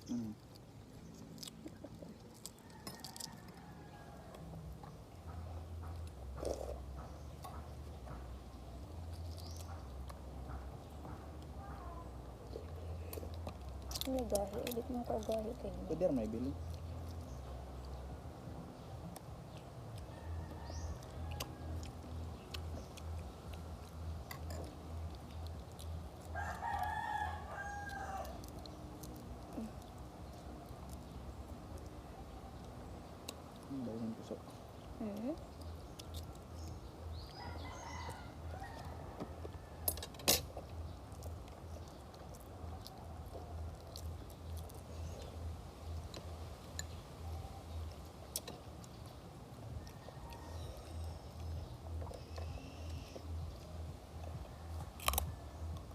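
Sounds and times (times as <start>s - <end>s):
mouth chewing food: 0.0s - 55.9s
rooster crowing: 20.1s - 22.0s, 26.4s - 28.5s, 37.3s - 40.0s
low pulsing hum: 40.6s - 55.9s
sharp crunches: 54.8s - 55.9s.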